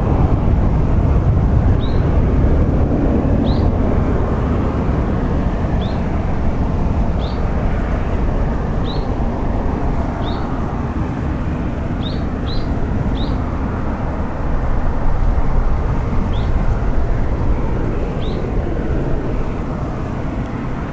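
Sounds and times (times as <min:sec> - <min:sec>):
distant jet engines rumbling: 0:00.0 - 0:20.9
bird chirping: 0:03.4 - 0:03.7, 0:05.8 - 0:06.0, 0:07.2 - 0:07.4, 0:08.8 - 0:09.1, 0:10.2 - 0:10.4, 0:12.0 - 0:13.4, 0:16.3 - 0:16.6, 0:18.2 - 0:18.4.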